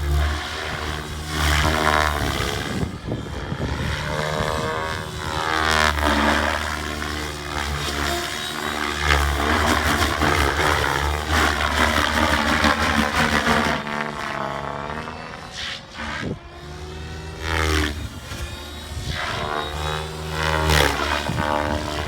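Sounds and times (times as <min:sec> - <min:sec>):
model helicopter rotor whine: 0:00.0 - 0:22.0.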